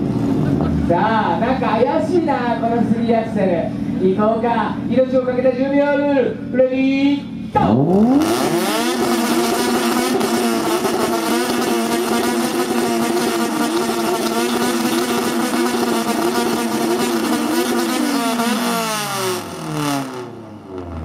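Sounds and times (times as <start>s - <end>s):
car engine revving: 7.2s - 21.0s.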